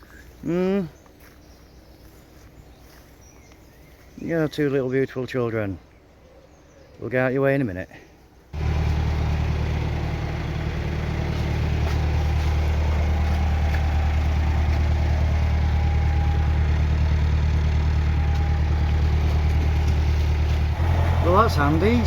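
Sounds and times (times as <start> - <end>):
boat engine humming: 8.6 - 22.0.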